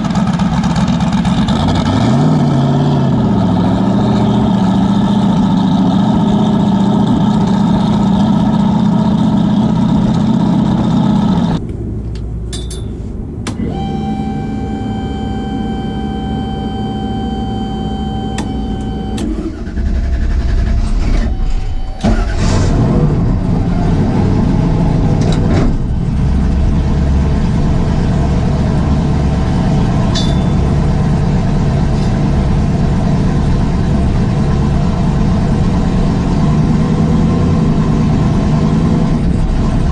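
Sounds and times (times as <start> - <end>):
car engine running: 0.0 - 39.9
engine starting and idling: 13.4 - 23.6.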